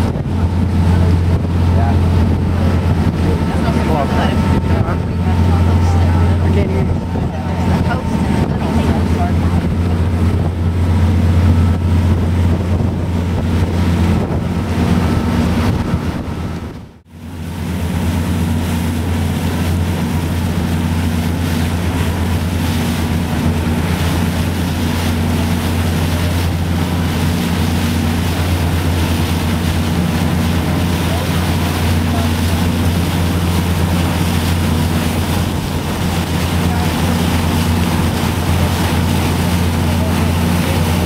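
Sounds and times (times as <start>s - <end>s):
boat engine droning: 0.0s - 41.0s
wind on microphone: 0.0s - 41.0s.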